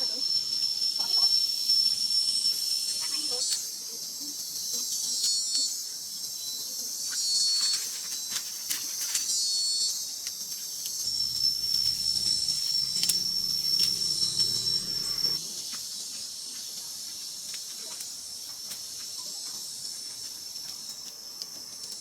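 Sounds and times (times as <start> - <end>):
shrill insect chorus: 0.0 - 22.0
high-pitched drone: 11.1 - 15.4.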